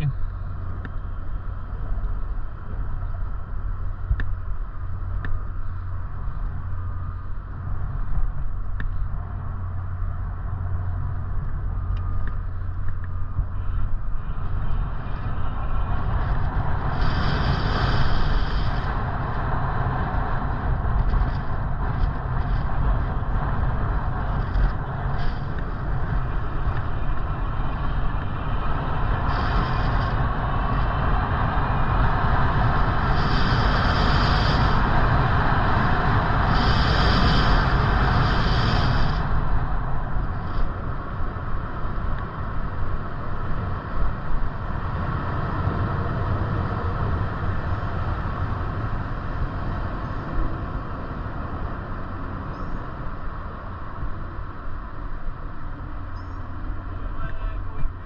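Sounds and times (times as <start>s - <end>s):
wind and road noise: 0.0s - 58.0s
faint clicks: 5.2s - 5.4s
short hiss: 16.9s - 18.9s, 36.4s - 39.3s.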